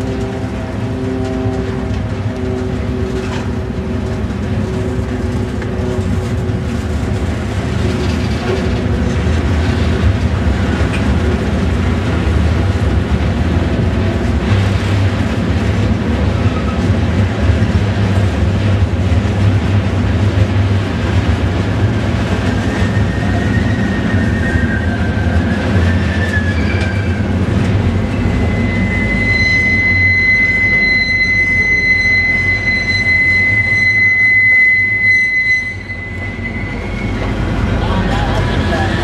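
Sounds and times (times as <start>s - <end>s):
train rumbling past: 0.0s - 39.0s
train wheels squealing: 22.3s - 39.0s.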